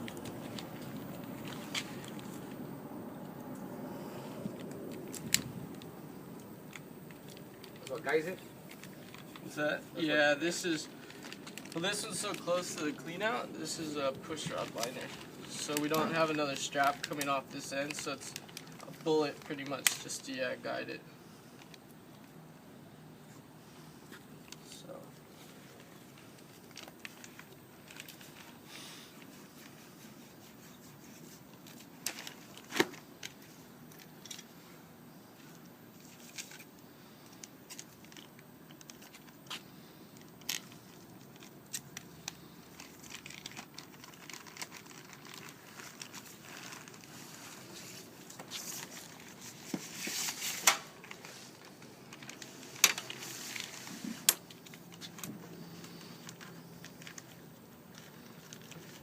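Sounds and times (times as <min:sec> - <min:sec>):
crinkling and tearing: 0:00.0 - 0:02.7, 0:10.5 - 0:20.8, 0:24.1 - 0:34.5, 0:35.4 - 0:59.0.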